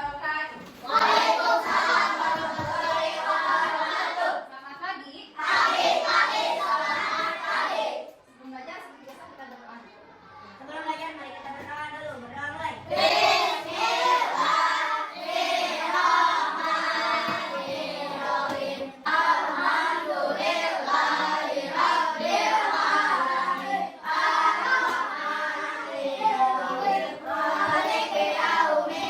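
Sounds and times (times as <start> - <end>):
children singing in unison: 0.8 - 4.4, 5.4 - 8.1, 12.9 - 29.0.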